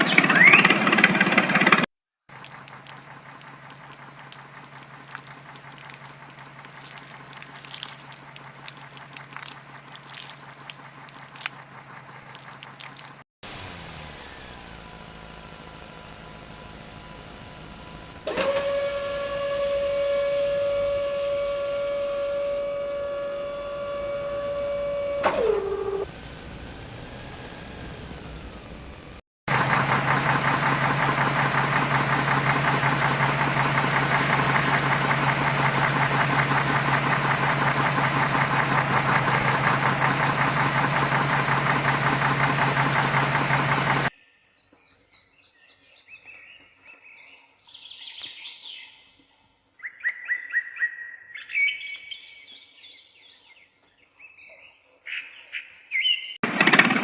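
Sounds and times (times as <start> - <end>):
birds chirping: 0.0 - 1.8
small motor buzzing: 13.4 - 29.2.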